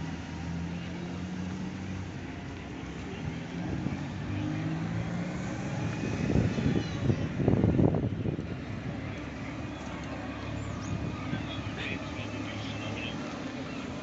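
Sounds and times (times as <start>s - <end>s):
car engines running: 0.0s - 14.0s
vehicle rumble: 0.0s - 14.0s.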